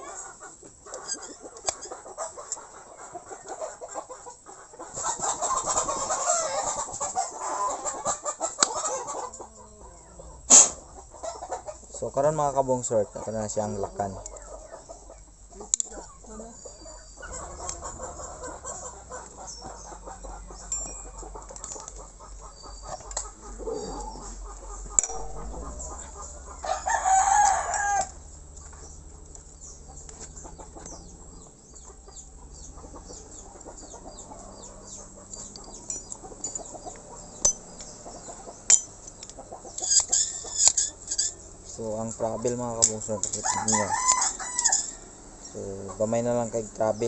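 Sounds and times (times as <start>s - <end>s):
rooster crowing: 5.5s - 8.1s, 24.9s - 28.3s, 43.4s - 45.3s.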